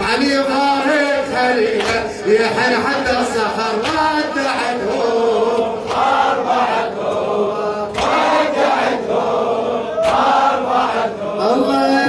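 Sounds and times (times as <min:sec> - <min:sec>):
men chanting in unison: 0:00.0 - 0:12.0.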